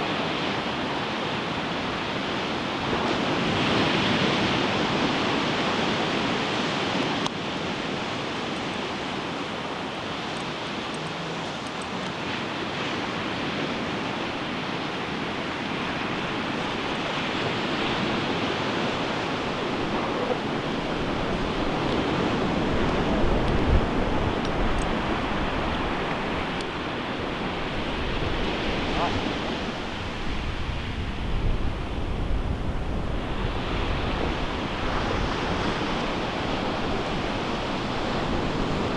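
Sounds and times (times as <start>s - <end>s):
ocean waves breaking on beach: 0.0s - 38.9s.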